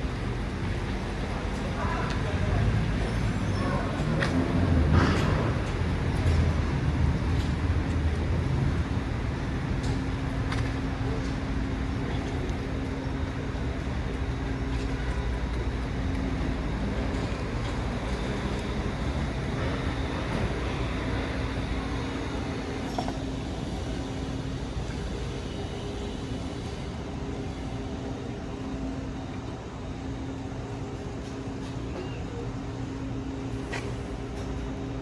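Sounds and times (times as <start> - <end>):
traffic engine hum and rumble: 0.0 - 35.0.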